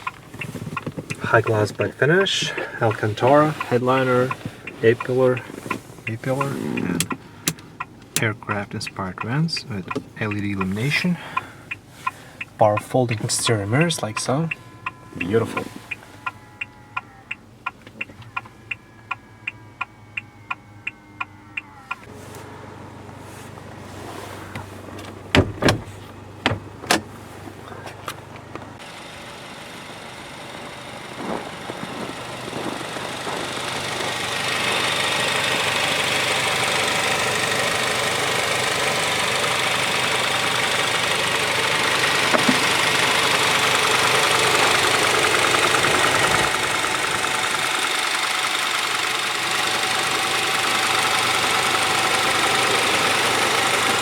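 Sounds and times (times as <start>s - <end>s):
car cabin rushing noise: 0.0s - 7.2s, 23.1s - 28.0s, 30.5s - 35.8s, 42.0s - 48.1s.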